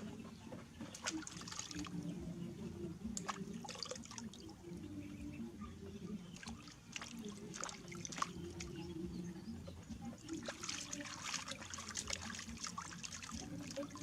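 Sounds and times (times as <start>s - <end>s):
bath water trickling: 0.0s - 14.0s
sharp water splashes: 0.8s - 2.1s, 3.1s - 4.6s, 6.3s - 9.0s, 10.0s - 14.0s.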